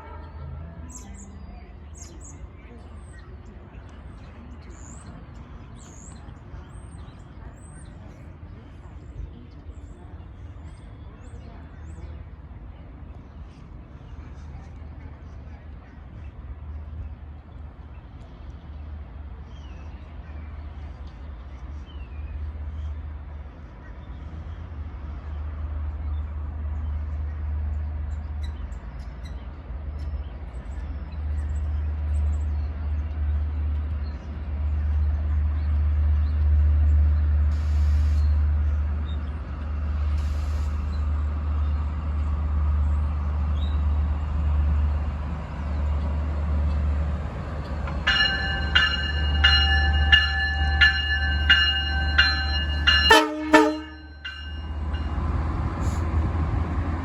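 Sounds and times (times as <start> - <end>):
railroad crossing bell ringing: 48.0 - 56.0.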